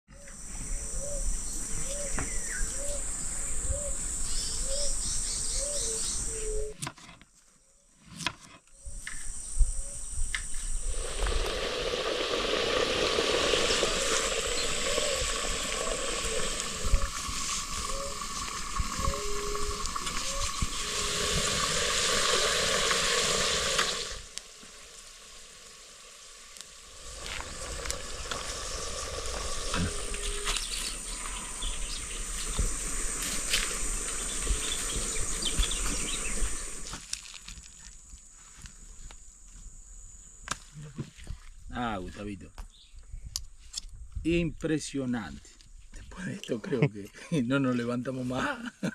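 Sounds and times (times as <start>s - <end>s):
insect trilling: 0.1s - 6.7s, 8.8s - 38.2s
dense hissing insect chorus: 0.2s - 6.7s, 8.9s - 41.0s.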